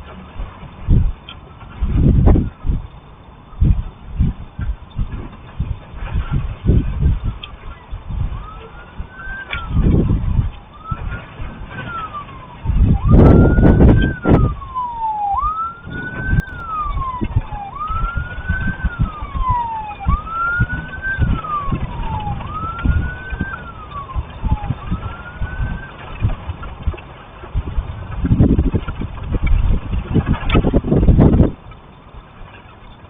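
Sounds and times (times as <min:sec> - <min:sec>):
low rumbling buffeting: 0:00.0 - 0:33.0
emergency vehicle siren wailing: 0:05.6 - 0:27.7.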